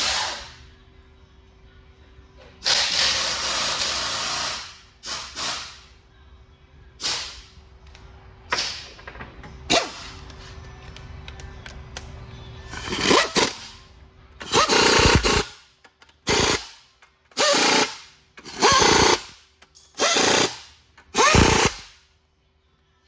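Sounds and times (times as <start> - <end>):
air impact wrench hammering: 2.6 - 5.9, 12.8 - 13.7, 14.4 - 15.6, 16.2 - 22.0.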